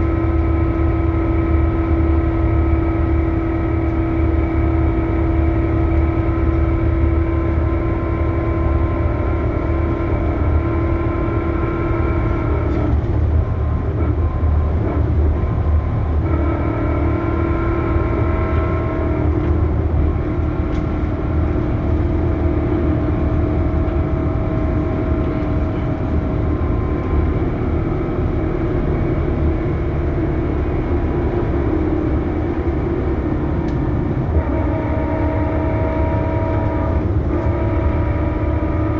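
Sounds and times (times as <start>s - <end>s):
bus engine rumble: 0.0s - 38.9s
bus gearbox whine: 8.7s - 38.9s.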